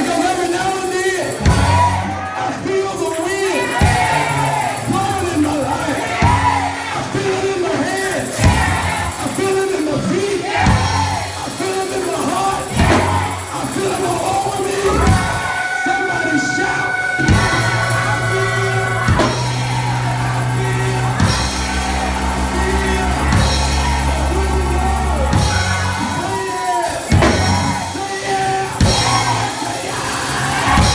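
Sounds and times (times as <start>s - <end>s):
voices singing and shouting: 0.0s - 30.9s
bass and keyboard chords: 1.4s - 2.1s, 6.2s - 6.8s, 14.7s - 26.5s, 27.1s - 28.0s, 30.6s - 30.9s
drum hits: 14.9s - 26.3s.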